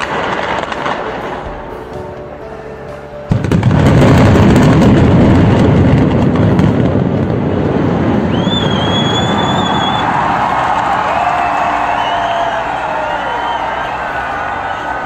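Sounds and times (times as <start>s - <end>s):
high steady whistle: 8.2s - 10.3s, 11.1s - 15.0s.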